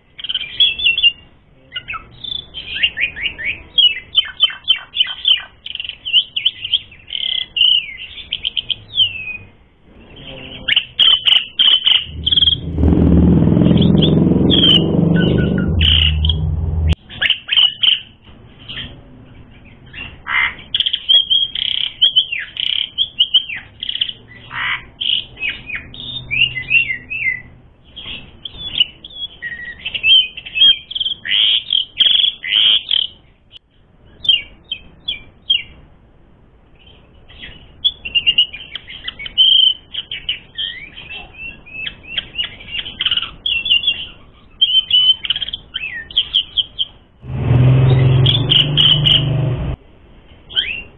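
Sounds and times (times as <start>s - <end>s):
starling chattering song: 10.0s - 17.0s.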